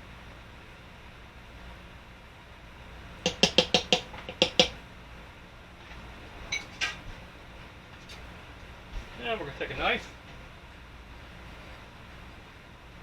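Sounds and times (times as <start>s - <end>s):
metal utensils knocking: 3.3s - 4.8s.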